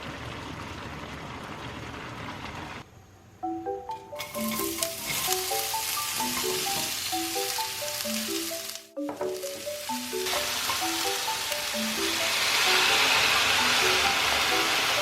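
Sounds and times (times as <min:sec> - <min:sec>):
mallet percussion music: 0:03.4 - 0:15.0
food sizzling in a frying pan: 0:04.2 - 0:15.0.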